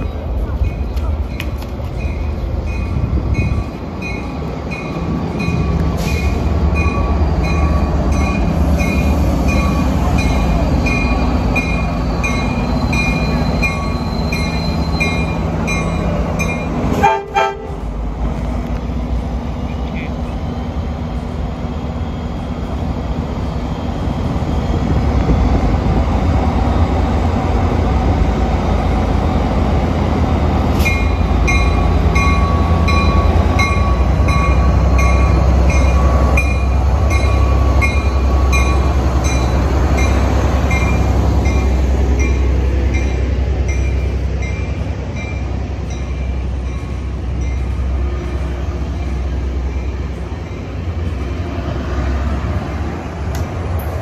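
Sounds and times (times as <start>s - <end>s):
diesel train engine rumble: 0.0s - 54.0s
train wheel noise: 0.0s - 54.0s
steady squeal: 6.0s - 15.4s.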